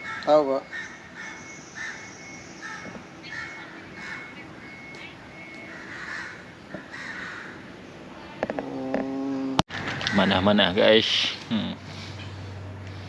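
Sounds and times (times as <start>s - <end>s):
bird giving harsh crow-like calls: 0.0s - 4.8s, 5.4s - 7.7s.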